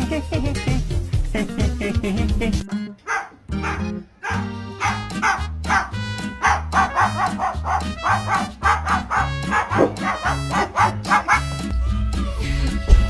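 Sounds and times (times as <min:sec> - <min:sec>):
background music with bass: 0:00.0 - 0:13.0
dog barking: 0:03.0 - 0:11.6.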